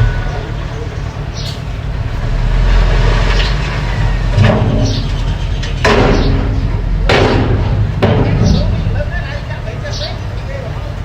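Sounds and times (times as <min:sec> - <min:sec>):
machine scraping and clanking: 0:00.0 - 0:09.8
bulldozer engine rumbling: 0:00.0 - 0:11.0.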